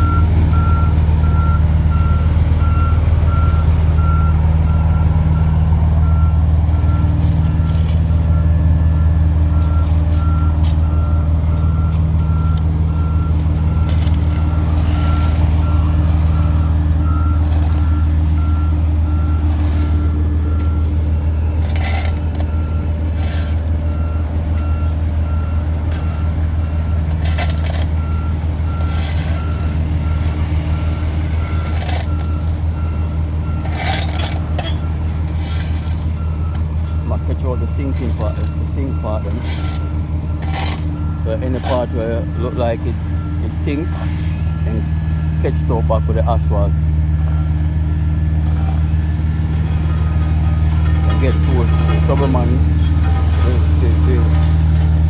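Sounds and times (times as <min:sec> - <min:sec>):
heavy machine engine running: 0:00.0 - 0:55.0
reversing alarm beeping: 0:00.0 - 0:55.0.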